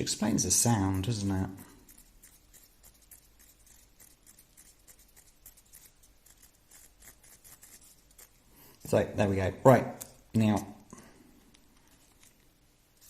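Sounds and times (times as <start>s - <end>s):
plastic parts clicking and rubbing: 11.4s - 12.5s.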